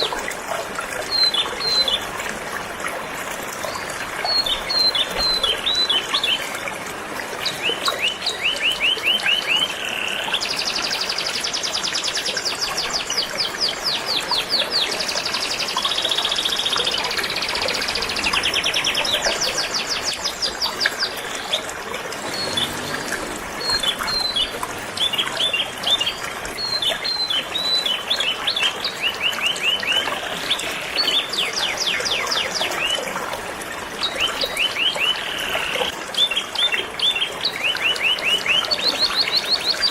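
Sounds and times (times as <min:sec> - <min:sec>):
flowing river: 0:00.0 - 0:39.9
canaries singing: 0:13.8 - 0:30.0.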